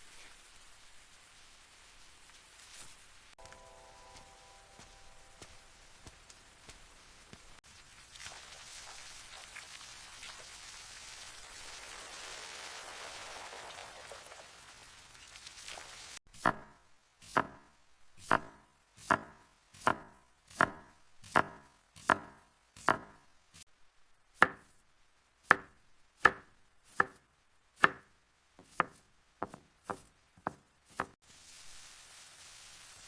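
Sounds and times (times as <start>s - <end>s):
knife chopping food: 16.4s - 16.7s, 17.3s - 17.6s, 18.2s - 23.2s, 24.4s - 24.7s, 25.5s - 25.7s, 26.3s - 27.2s, 27.8s - 28.0s, 28.6s - 31.2s.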